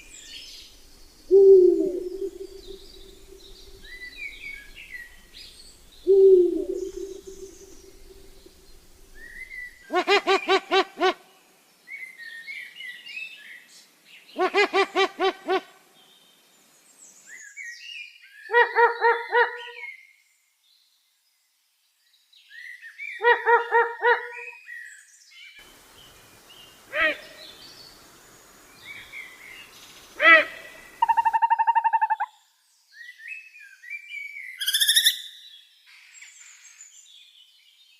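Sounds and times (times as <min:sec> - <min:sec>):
other birds chirping faintly: 0:00.0 - 0:10.7
bird calling rapid repeated notes: 0:31.0 - 0:32.3.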